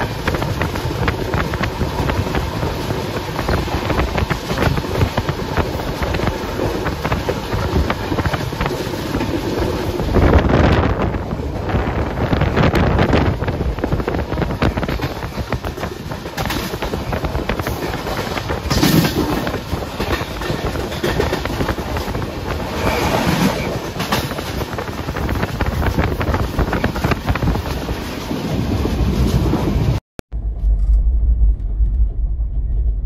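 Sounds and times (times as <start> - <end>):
train wheels clattering on rails: 0.0 - 30.0
wind on microphone: 0.0 - 33.0.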